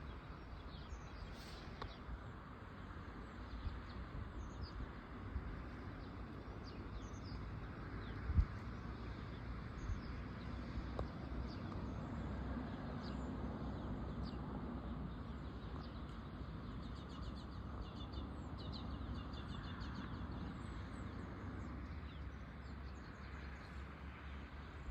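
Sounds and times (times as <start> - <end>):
small birds chirping: 5.8 - 24.9.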